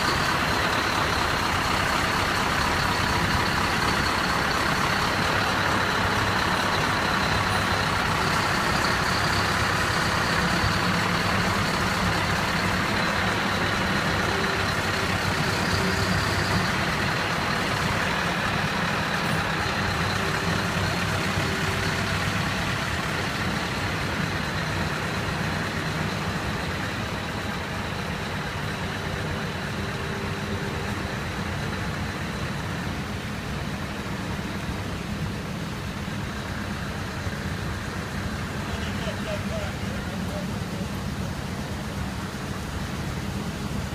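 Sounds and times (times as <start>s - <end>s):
truck engine running: 0.0s - 43.9s.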